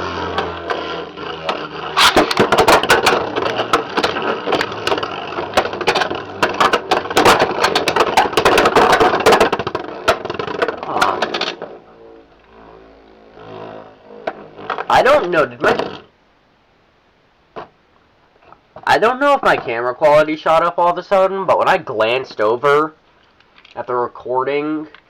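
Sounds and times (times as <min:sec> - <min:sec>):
spinning tops whirring: 0:00.0 - 0:16.0.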